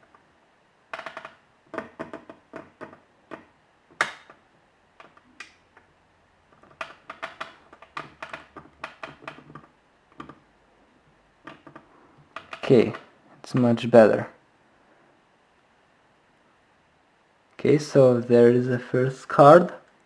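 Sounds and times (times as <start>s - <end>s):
small objects clicking on desk: 0.9s - 4.4s, 6.5s - 10.4s, 11.4s - 13.1s.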